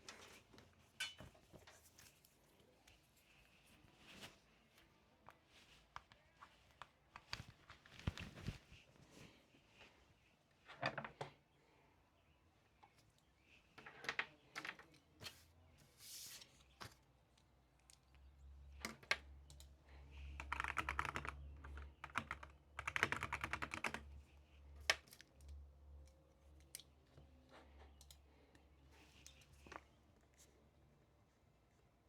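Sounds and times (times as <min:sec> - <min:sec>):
typing on computer keyboard: 0:18.8 - 0:24.1.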